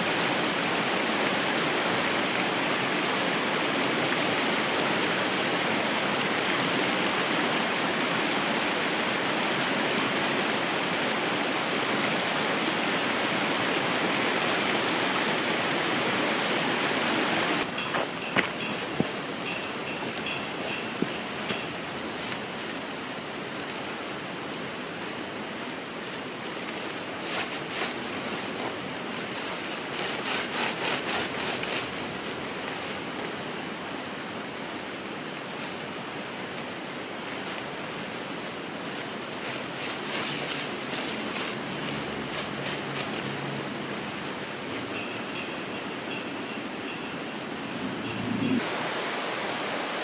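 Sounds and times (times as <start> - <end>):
river flowing: 0.0 - 50.0
gear rubbing and rustling: 26.8 - 33.0, 38.8 - 43.4.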